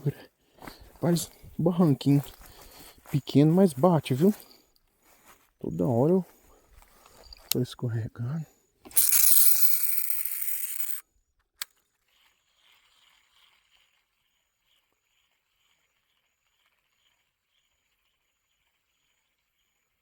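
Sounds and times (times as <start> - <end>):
fishing reel spool spinning: 8.9 - 11.0, 11.6 - 20.0.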